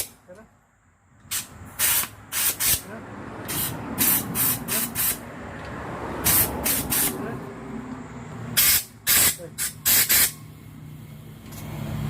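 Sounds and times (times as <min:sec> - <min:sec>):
short hissing bursts: 0:01.3 - 0:02.9, 0:03.5 - 0:05.2, 0:06.2 - 0:07.2, 0:08.6 - 0:10.4.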